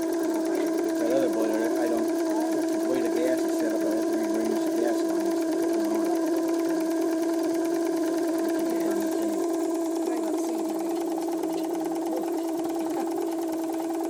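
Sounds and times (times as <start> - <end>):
steam engine humming and clattering: 0.0 - 14.0.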